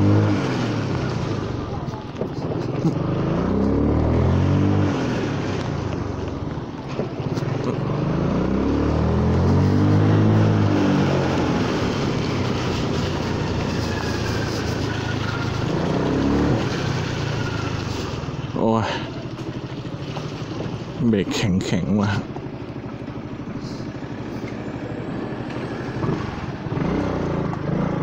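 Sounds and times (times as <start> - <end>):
scooter engine revving: 0.0 - 28.0
tyres hissing on wet road: 9.4 - 19.3.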